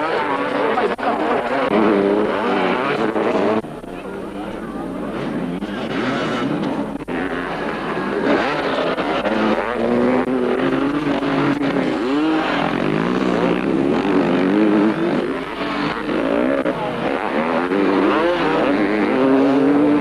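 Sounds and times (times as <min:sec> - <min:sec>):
motocross bike engines revving: 0:00.0 - 0:20.0.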